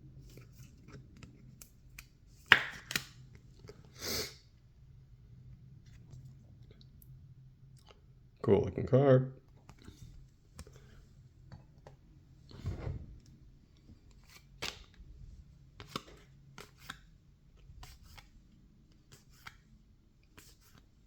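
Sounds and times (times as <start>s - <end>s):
cards snapping and sliding: 0.9s - 3.2s, 14.2s - 15.0s, 15.8s - 17.1s, 17.8s - 18.3s, 19.1s - 19.6s
card rustle: 15.8s - 17.1s, 17.8s - 18.3s.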